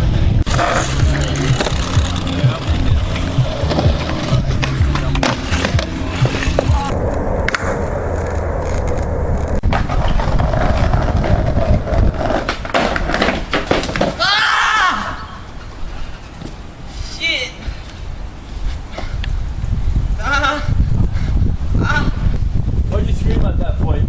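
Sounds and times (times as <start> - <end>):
skateboard wheels rolling on pavement: 0.0 - 20.2
skateboard clacking on ground: 0.4 - 7.7, 9.7 - 14.2.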